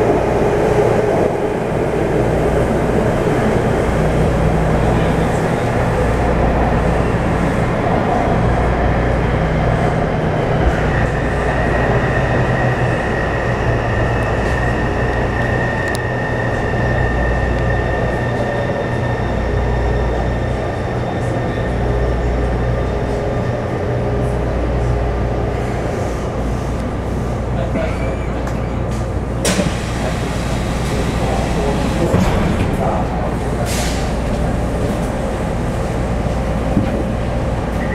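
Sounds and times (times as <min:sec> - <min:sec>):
traction equipment whine: 0:00.0 - 0:23.5
train rumble: 0:00.0 - 0:37.9.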